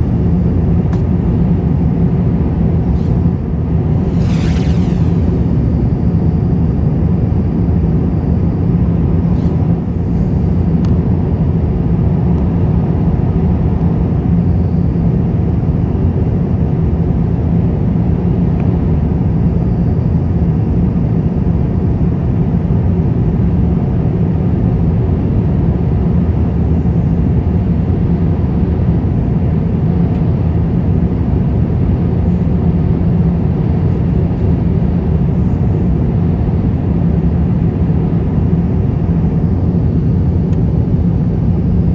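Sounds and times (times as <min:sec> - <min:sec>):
airplane cabin engine rumble: 0:00.0 - 0:41.9.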